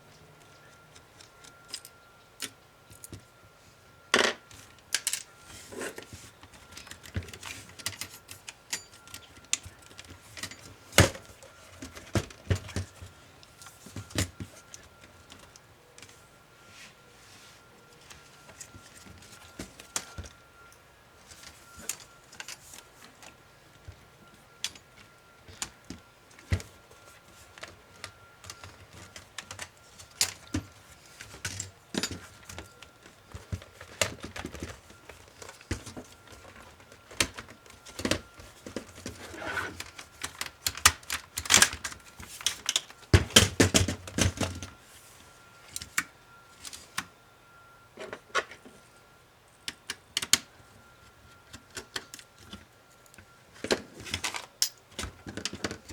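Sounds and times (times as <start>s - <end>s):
laptop parts clicking and tapping: 4.2s - 16.2s, 21.3s - 39.2s, 39.8s - 44.8s, 49.6s - 55.9s.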